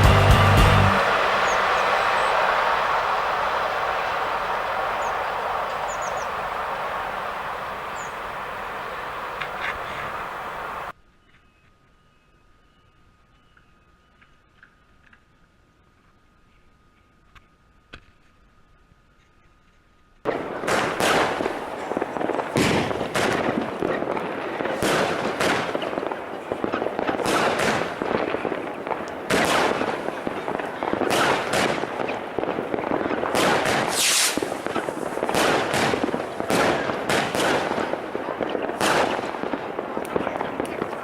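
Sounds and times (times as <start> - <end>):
train passing at speed: 0.0 - 10.9.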